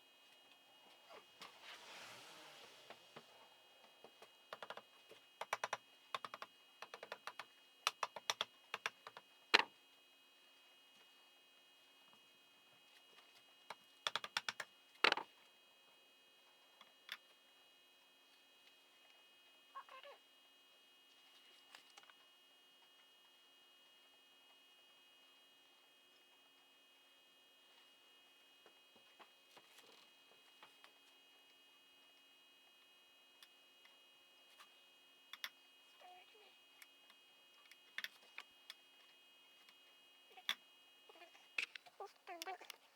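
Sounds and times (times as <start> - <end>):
faint steady hum: 0.0 - 42.9
faint squeak: 0.9 - 3.5.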